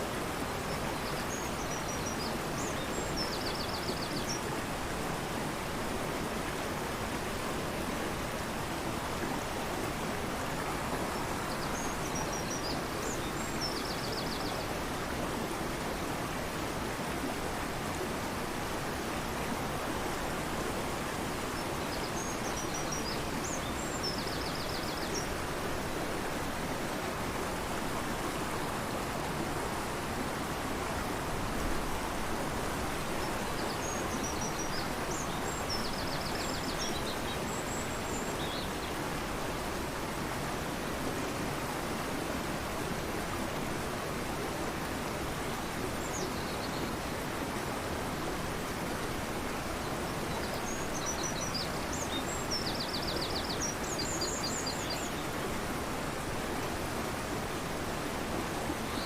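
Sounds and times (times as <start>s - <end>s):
river rushing: 0.0s - 59.0s.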